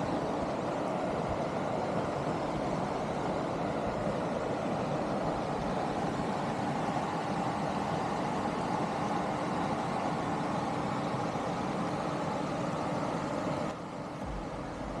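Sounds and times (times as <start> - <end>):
truck engine and road noise: 13.9 - 15.0.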